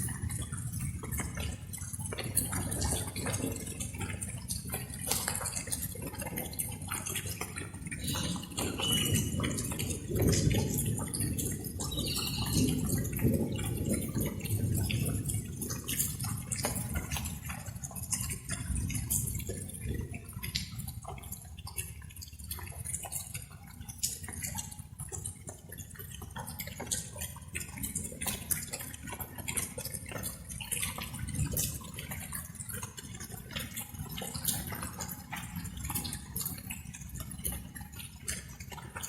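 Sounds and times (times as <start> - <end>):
rain drops dripping and tapping: 0.0 - 39.0.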